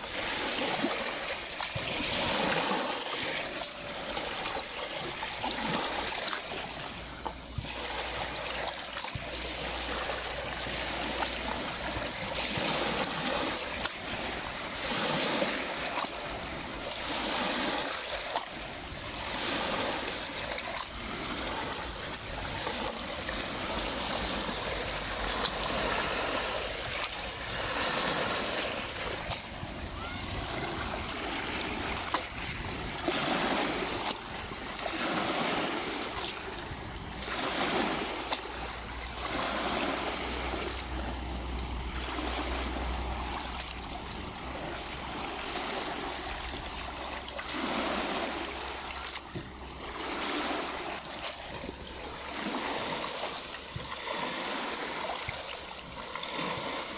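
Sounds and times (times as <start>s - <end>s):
lake waves lapping on shore: 0.0s - 56.9s.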